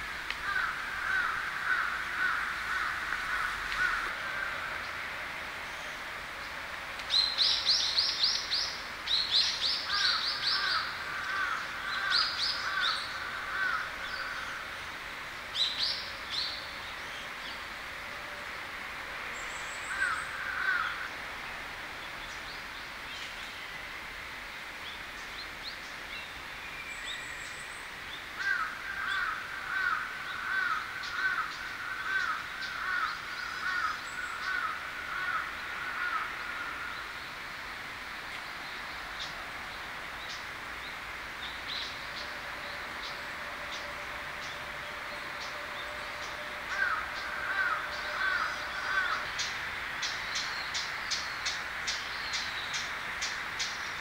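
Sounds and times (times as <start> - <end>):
outdoor background: 0.0 - 54.0.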